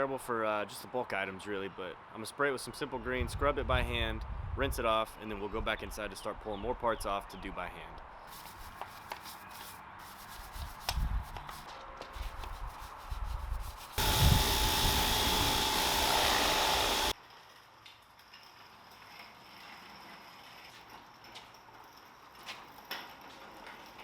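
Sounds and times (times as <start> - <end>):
brush scrubbing: 8.3 - 14.0
pressure washer spraying: 14.0 - 17.1.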